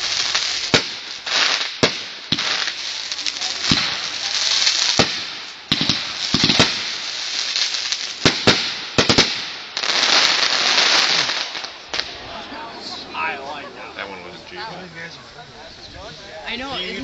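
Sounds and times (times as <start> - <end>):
fireworks bangs: 0.0 - 13.3
fireworks crackling hiss: 0.0 - 17.0.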